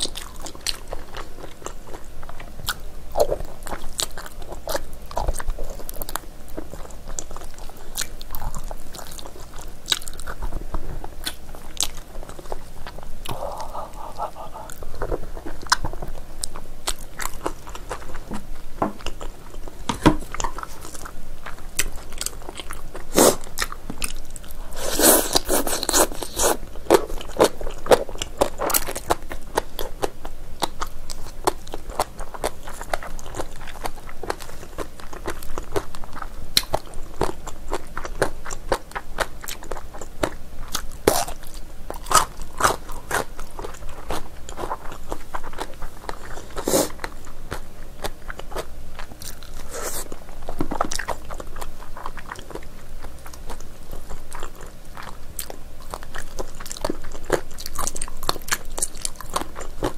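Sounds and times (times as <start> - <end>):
mouth chewing smacks and clicks: 0.0 - 19.3, 19.9 - 59.9.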